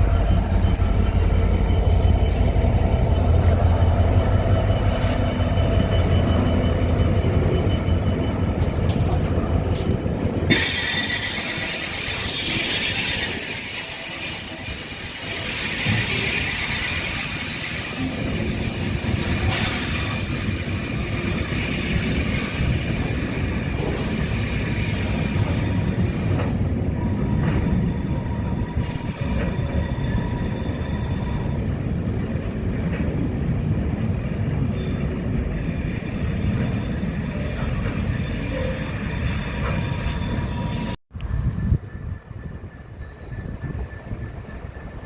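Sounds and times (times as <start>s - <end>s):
train wheels on track: 0.0s - 45.0s
high thin wheel squeal: 10.5s - 32.4s.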